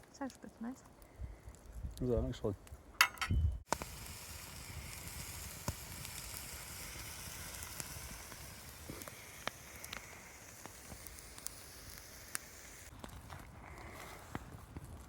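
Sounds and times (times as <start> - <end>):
food sizzling in a pan: 3.7 - 12.9.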